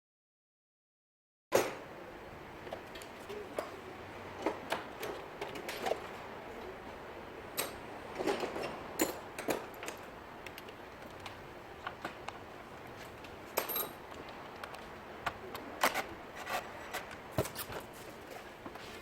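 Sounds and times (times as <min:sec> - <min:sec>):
steady background hiss: 0:01.5 - 0:19.0
tools clicking and clinking: 0:07.6 - 0:17.9.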